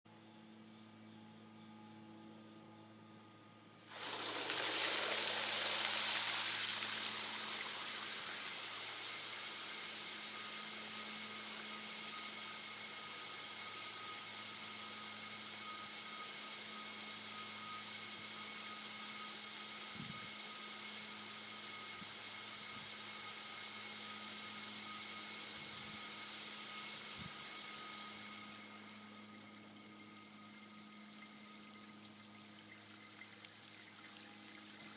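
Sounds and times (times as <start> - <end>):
faint steady hum: 0.1 - 34.9
steady rush of water: 3.9 - 10.4.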